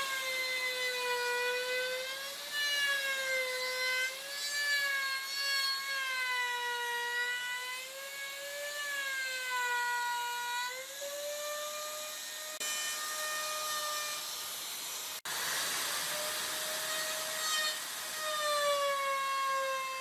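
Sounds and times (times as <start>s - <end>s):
hiss of wood cutting: 0.0s - 6.0s, 10.2s - 20.0s.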